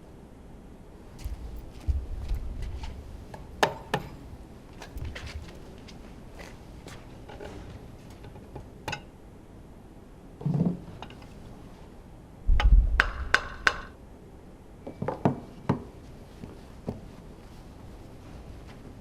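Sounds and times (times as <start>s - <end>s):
sharp knocks: 12.5s - 14.0s.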